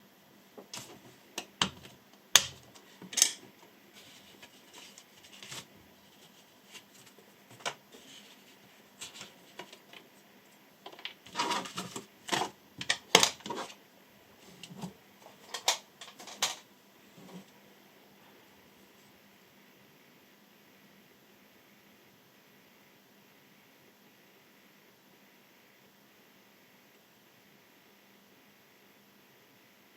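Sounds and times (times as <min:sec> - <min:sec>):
objects being handled: 0:00.6 - 0:13.8, 0:14.4 - 0:17.5.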